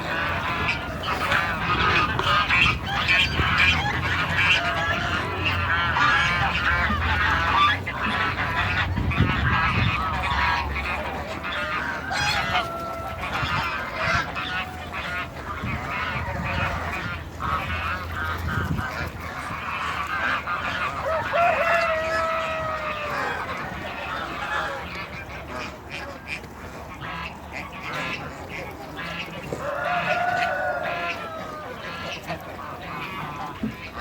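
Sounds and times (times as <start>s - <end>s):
geese honking: 0.0s - 34.0s.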